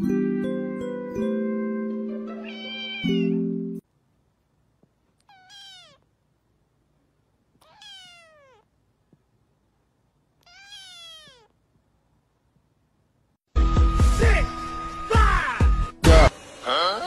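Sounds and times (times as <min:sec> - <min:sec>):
kitten meowing: 0:02.4 - 0:03.4, 0:05.2 - 0:06.1, 0:07.6 - 0:08.7, 0:10.4 - 0:11.6.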